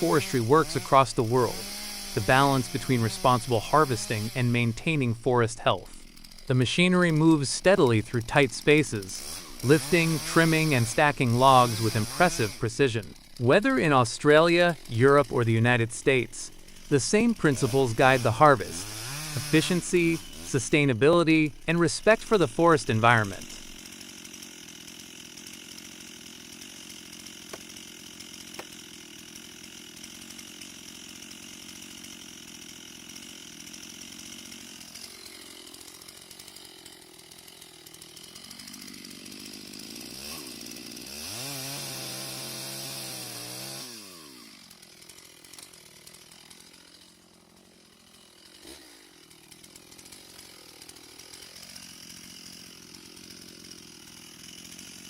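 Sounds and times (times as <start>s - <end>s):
chainsaw revving and cutting timber: 0.0s - 55.0s.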